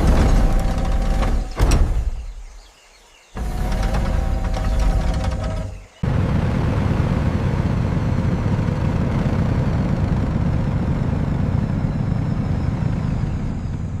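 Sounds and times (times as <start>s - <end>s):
aircraft engine rumbling: 3.4s - 14.0s.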